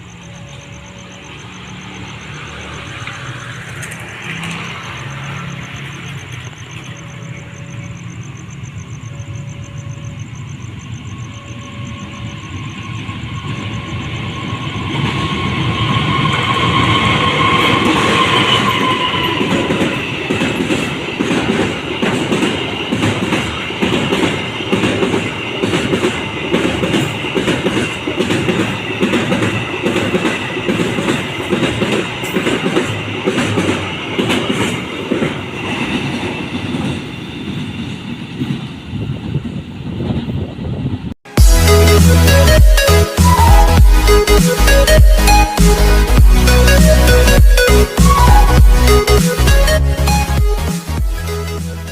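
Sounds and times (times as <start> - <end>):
wheels clacking over rail joints: 0.0 - 8.5, 11.7 - 38.9
high whine: 0.0 - 26.8, 41.3 - 51.9
freight train passing: 0.0 - 51.9.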